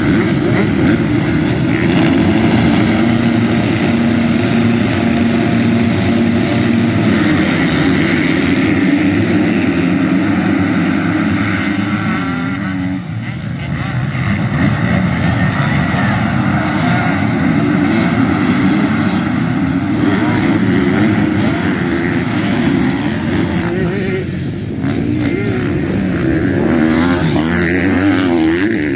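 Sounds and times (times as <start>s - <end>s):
motocross bike engines revving: 0.0s - 28.9s.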